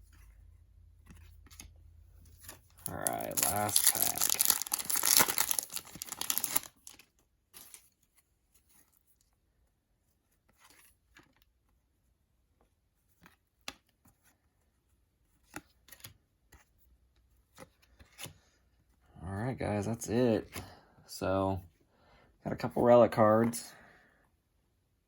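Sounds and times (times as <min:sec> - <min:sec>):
cards being handled: 0:01.0 - 0:09.3, 0:17.4 - 0:18.9
foil wrapper tearing and crinkling: 0:02.8 - 0:07.0.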